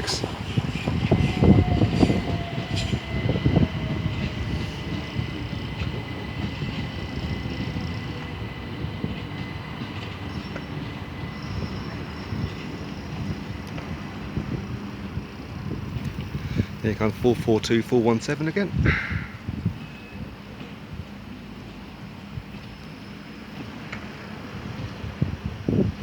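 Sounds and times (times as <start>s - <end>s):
train high-pitched whine: 0.0s - 17.1s.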